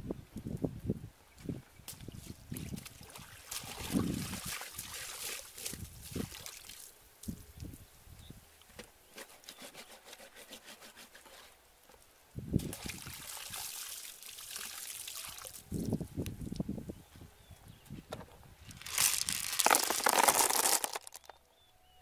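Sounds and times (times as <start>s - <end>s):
water pouring onto ground: 2.5s - 6.9s, 12.6s - 16.0s, 18.7s - 21.3s.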